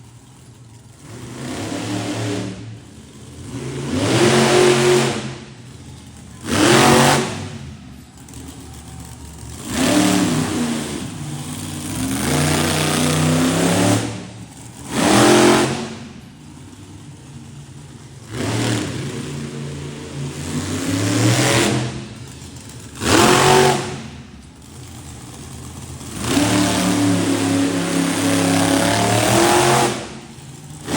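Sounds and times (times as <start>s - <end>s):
monster truck engine revving: 0.0s - 30.9s.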